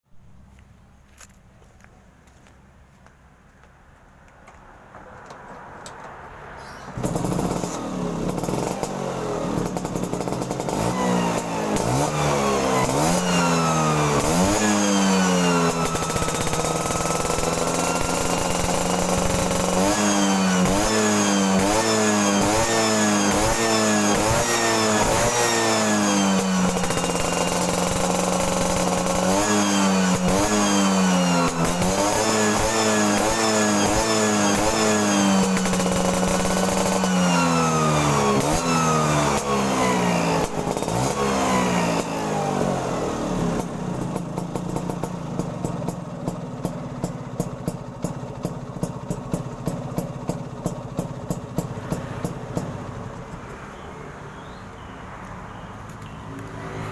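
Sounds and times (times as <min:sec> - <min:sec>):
scooter engine idling and revving: 0:04.4 - 0:56.9.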